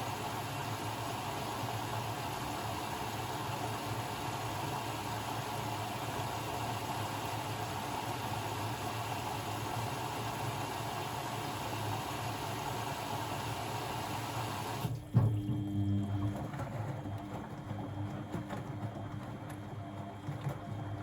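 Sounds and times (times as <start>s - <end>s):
water rushing through washing machine: 0.0s - 21.0s
low machine hum: 14.8s - 20.0s.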